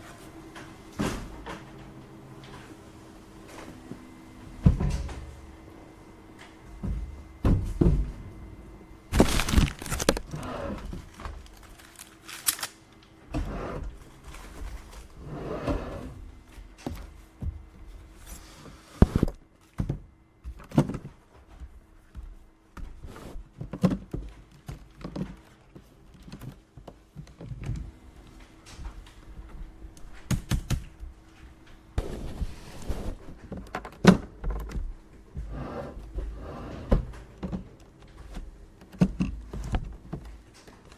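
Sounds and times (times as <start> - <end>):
faint steady hum: 0.0 - 40.9
objects thumping and clicking: 6.4 - 8.4, 9.1 - 12.6
paper rustling: 9.1 - 12.8.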